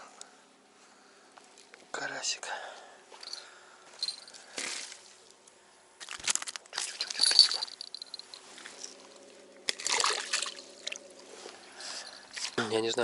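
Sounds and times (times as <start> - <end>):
rustling crinkling and clinking: 3.2 - 5.4, 6.0 - 9.4.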